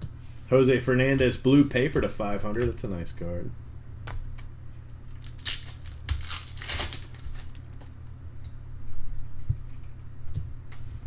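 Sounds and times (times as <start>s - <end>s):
steady low hum: 0.0s - 11.0s
foil wrappers tearing and crinkling: 5.0s - 7.8s.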